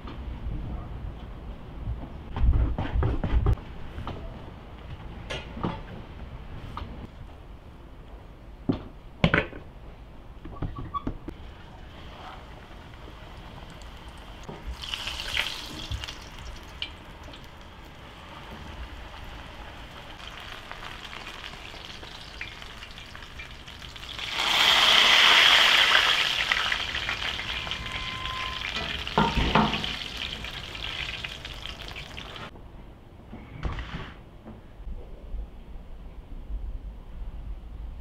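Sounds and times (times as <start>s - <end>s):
food sizzling in hot oil: 13.4s - 32.5s.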